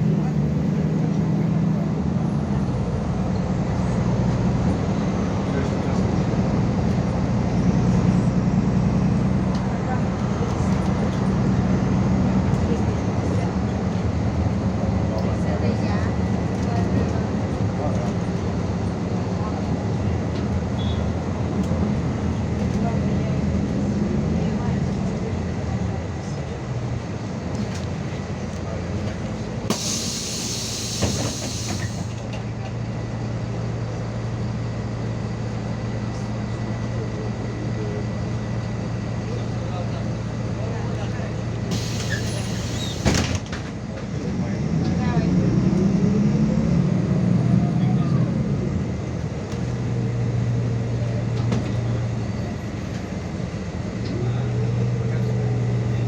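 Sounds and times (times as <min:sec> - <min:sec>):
bus engine and road drone: 0:00.0 - 0:56.0
compressed air hiss: 0:29.7 - 0:32.1, 0:41.7 - 0:43.0.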